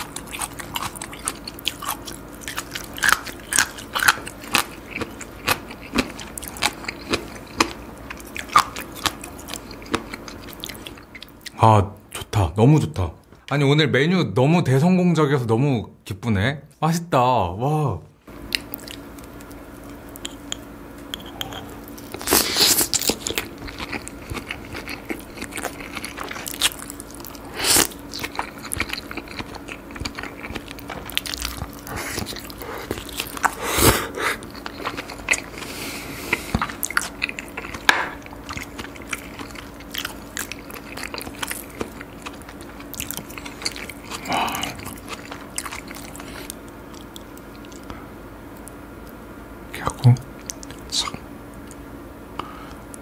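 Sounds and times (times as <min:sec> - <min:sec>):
chewing and biting raw fish: 0:00.0 - 0:11.4, 0:18.5 - 0:48.0
faint steady hum: 0:00.0 - 0:53.0.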